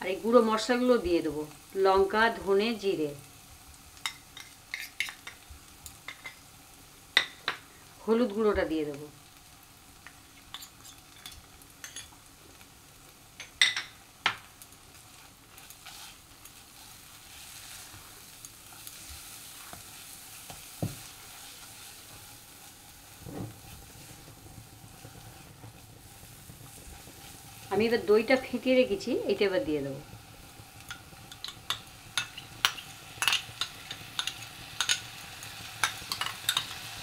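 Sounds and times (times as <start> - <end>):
spice paste sizzling in oil: 0.0 - 37.0
spatula scraping pan: 15.5 - 18.1.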